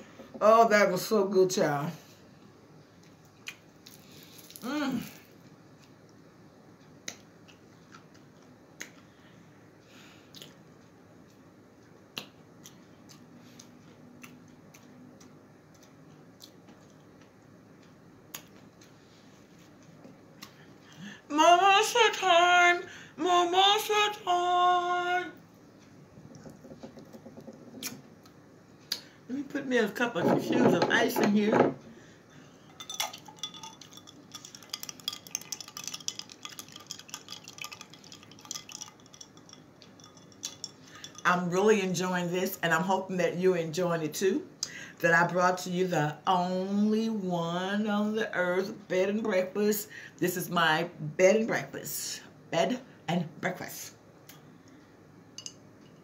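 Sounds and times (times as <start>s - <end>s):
ice cubes clinking in glass: 32.8s - 41.3s.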